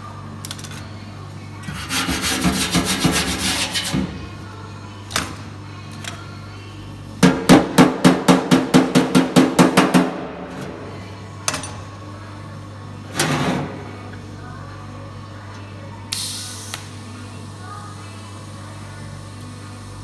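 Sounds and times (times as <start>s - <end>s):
hammer beating sheet metal: 1.8s - 4.2s, 7.2s - 10.5s.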